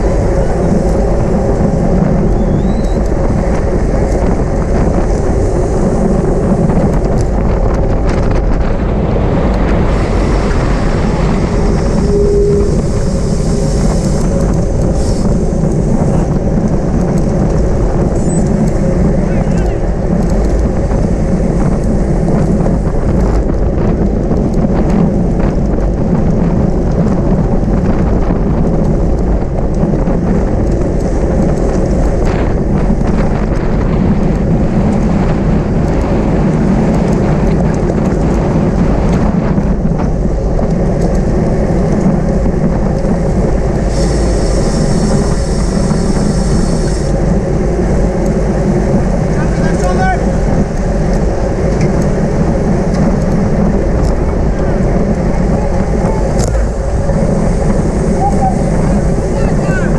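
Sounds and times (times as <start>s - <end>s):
wind buffeting microphone: 0.0s - 59.9s
high multi-tone sound: 11.8s - 13.8s.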